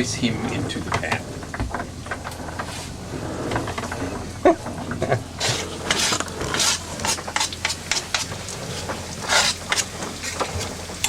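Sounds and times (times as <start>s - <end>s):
steady low hum: 0.0s - 11.0s
fish sizzling in a frying pan: 5.2s - 11.0s.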